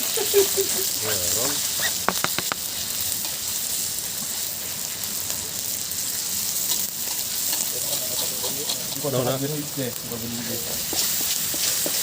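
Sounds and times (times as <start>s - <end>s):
sharp clicks: 1.8s - 2.6s
fish sizzling in hot oil: 3.3s - 12.0s.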